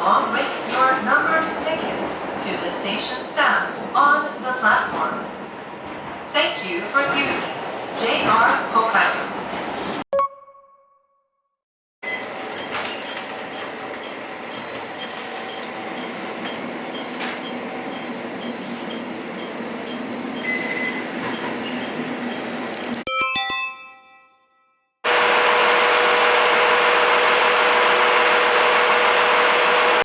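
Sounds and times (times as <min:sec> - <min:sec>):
ringing chime: 0:23.1 - 0:24.9.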